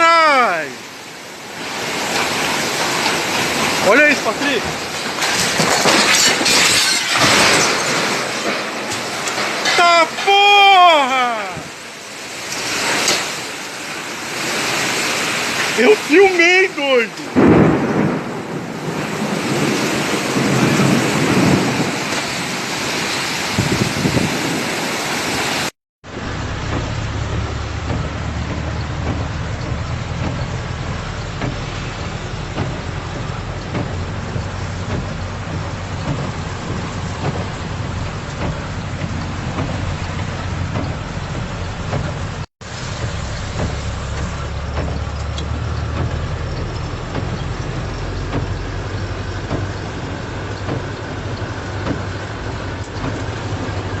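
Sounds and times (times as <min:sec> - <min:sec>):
heavy rain hissing: 0:00.0 - 0:54.0
raindrops pattering close by: 0:00.0 - 0:54.0
wind rumble on microphone: 0:17.4 - 0:25.6.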